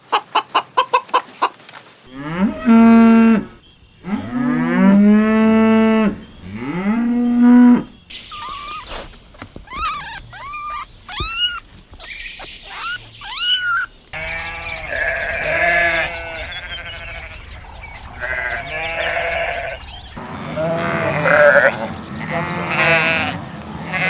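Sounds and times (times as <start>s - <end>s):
high chirping bird calls: 2.1s - 24.0s
goats or sheep bleating: 12.8s - 17.5s, 18.2s - 24.0s.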